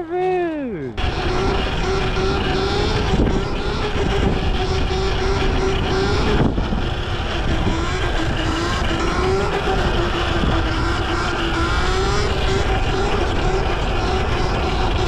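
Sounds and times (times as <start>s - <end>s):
dirt bike engine at high revs: 0.9s - 15.0s.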